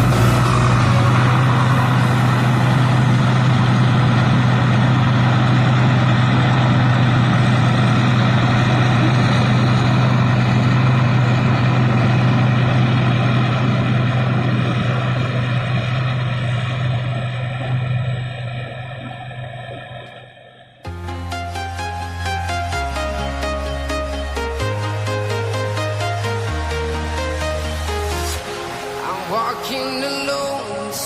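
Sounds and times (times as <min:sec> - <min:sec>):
harvester engine humming: 0:00.0 - 0:31.0.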